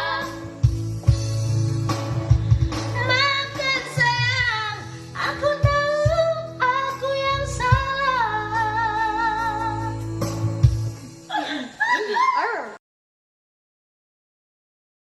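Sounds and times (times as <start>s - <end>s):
person singing with vibrato: 0.0s - 0.6s, 2.9s - 10.3s
backing music with steady beat: 0.0s - 11.9s.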